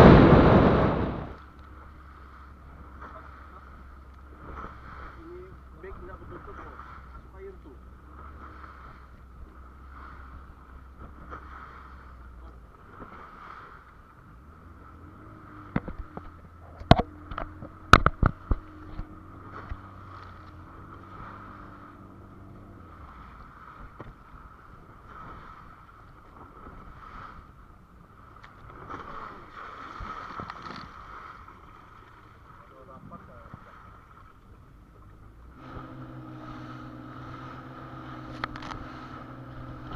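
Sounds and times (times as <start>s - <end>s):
low hum: 0.0s - 11.4s, 14.1s - 24.6s, 34.7s - 39.9s
wind and water wash: 0.0s - 39.9s.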